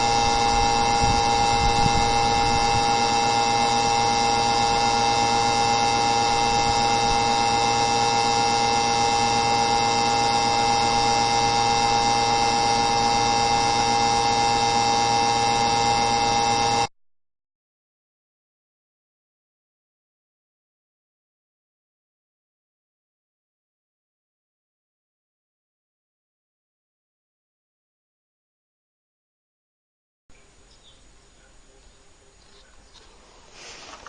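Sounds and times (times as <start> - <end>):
steady multi-tone hum: 0.0 - 16.9, 30.3 - 34.0
hiss: 33.4 - 34.0.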